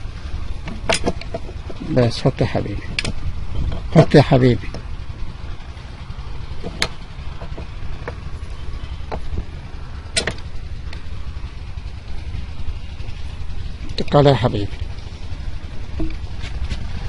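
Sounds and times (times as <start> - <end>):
steady low rumble: 0.0 - 17.0
clicks and knocks of tools: 0.6 - 1.8, 2.9 - 3.9.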